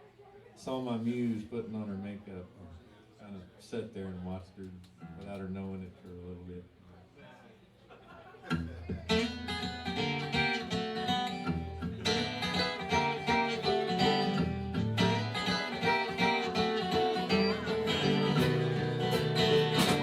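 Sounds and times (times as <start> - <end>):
guitar picking and strumming: 8.5 - 20.0
live band playing: 11.6 - 20.0.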